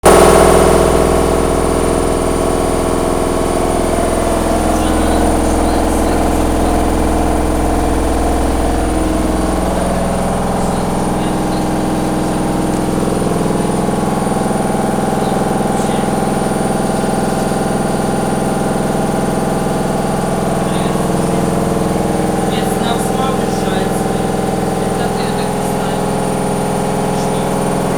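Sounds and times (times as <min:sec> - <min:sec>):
washer-dryer drum humming: 0:00.0 - 0:27.9.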